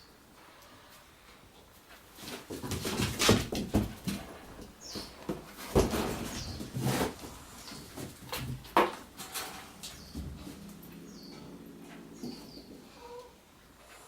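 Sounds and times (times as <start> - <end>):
kittens knocking and rustling: 1.9 - 12.8.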